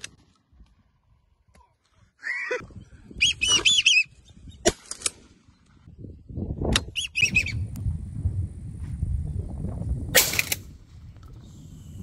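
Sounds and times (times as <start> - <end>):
low rumbling wind: 2.6 - 12.0.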